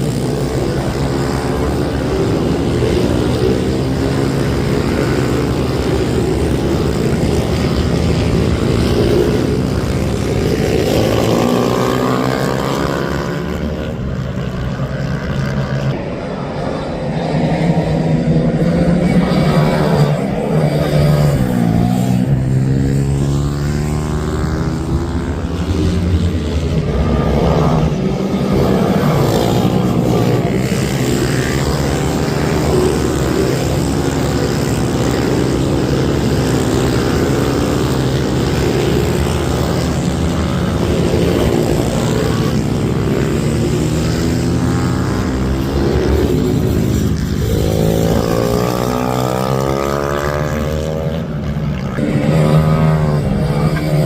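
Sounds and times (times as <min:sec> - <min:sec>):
minibike engines racing: 0:00.0 - 0:54.0.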